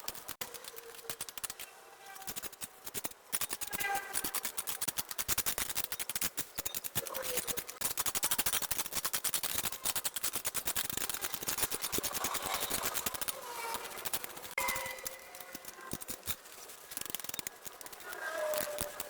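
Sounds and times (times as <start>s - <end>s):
vines and brush being cut: 0.0s - 19.0s
faint voice-like calls: 17.8s - 19.0s.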